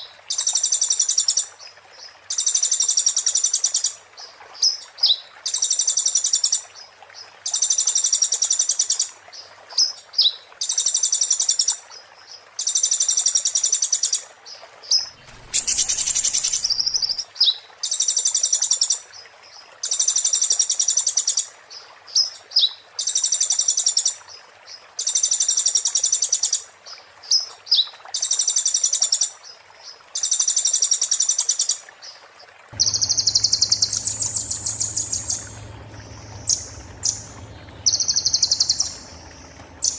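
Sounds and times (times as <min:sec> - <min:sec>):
songbird rattling song: 0:14.9 - 0:17.3, 0:32.8 - 0:39.9
low hum: 0:15.1 - 0:17.2, 0:32.8 - 0:39.9
burst of noise: 0:32.8 - 0:39.9.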